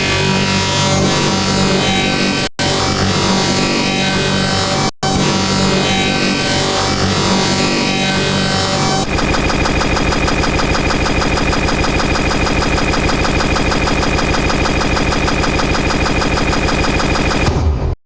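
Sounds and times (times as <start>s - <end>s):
buzzing electronic loop: 9.0s - 17.6s
steady high tone: 9.1s - 17.6s.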